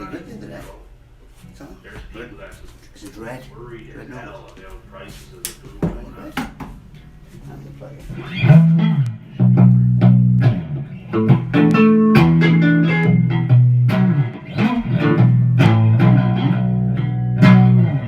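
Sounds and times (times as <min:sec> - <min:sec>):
blues guitar riff: 0:08.1 - 0:18.0.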